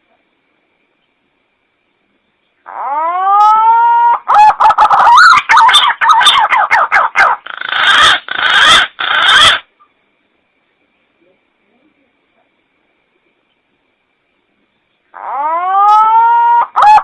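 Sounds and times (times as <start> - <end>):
recorded pigeon call: 2.6 - 9.8, 15.1 - 17.0.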